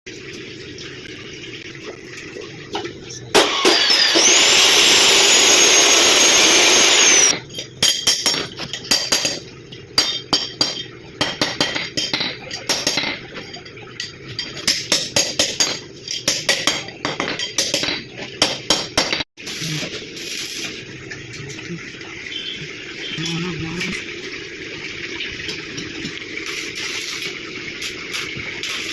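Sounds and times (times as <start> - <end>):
angle grinder on metal: 3.4 - 7.3.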